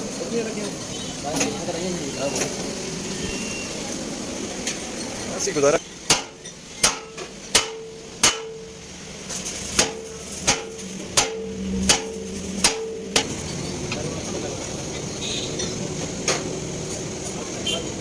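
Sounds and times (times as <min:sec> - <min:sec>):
hammer striking metal: 0:06.0 - 0:08.8, 0:09.6 - 0:13.4.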